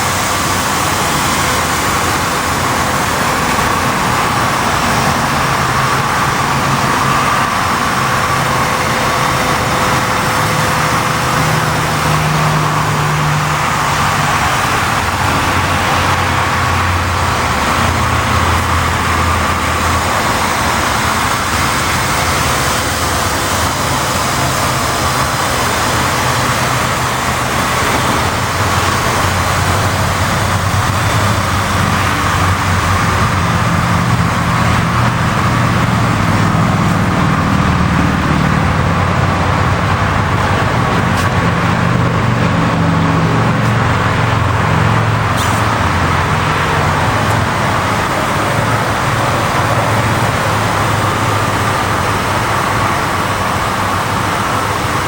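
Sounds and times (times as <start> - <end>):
motorcycle engine running: 0.0 - 53.2.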